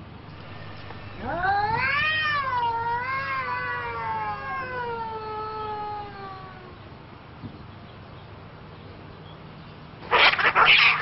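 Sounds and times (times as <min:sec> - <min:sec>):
cat yowling: 0:01.2 - 0:06.8, 0:10.1 - 0:11.0.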